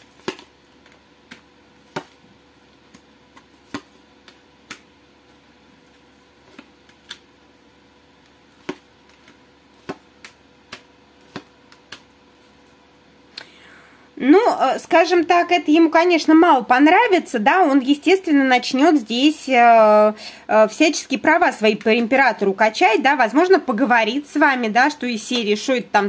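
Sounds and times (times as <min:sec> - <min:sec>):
cards clicking and tapping on table: 0:08.6 - 0:12.1.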